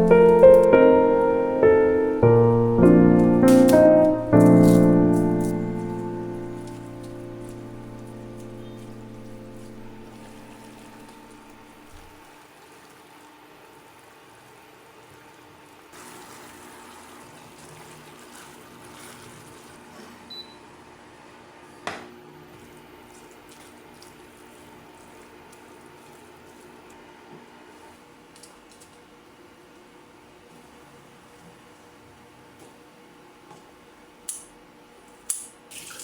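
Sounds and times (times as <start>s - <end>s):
faint running water: 0.0s - 20.6s, 22.4s - 29.1s.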